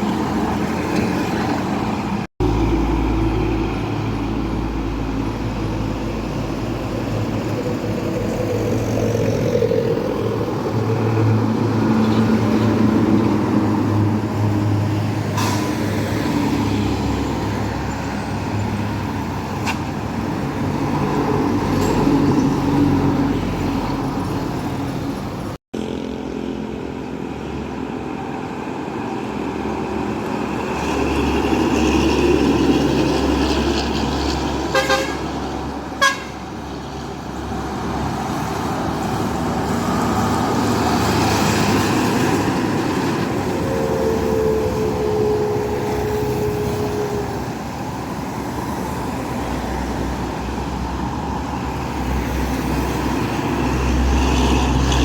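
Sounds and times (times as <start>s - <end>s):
engine and tyre rumble: 0.0s - 55.0s
held horn-like tone: 34.7s - 35.4s, 36.0s - 36.4s, 43.4s - 47.7s.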